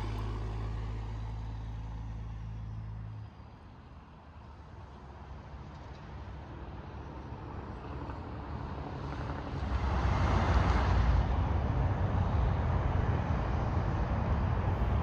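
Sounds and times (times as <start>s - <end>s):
truck passing: 0.0s - 3.7s.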